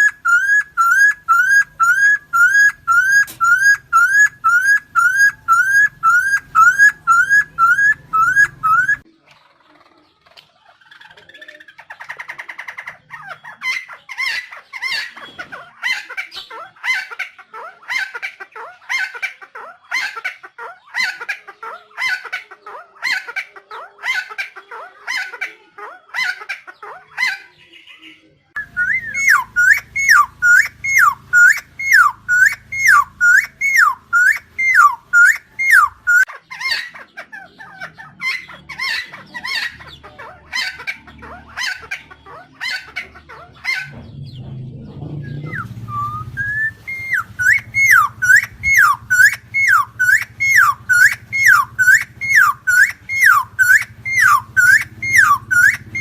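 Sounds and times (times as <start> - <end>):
bird harsh repeated calls: 0.0 - 9.1, 10.8 - 44.4, 45.2 - 56.0
looping down-slurred bird notes: 0.0 - 9.1, 28.6 - 36.3, 45.2 - 56.0
low hum: 43.9 - 56.0.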